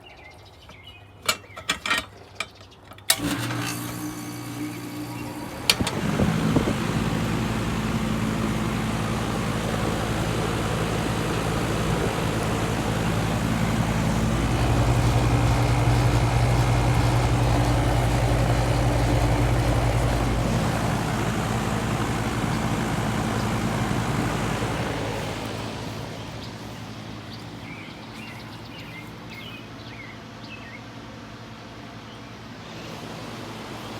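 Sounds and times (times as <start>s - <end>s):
air conditioner running noise: 3.1s - 33.9s
air conditioner unit humming: 3.1s - 33.9s
air conditioner unit clicks: 4.5s - 25.9s.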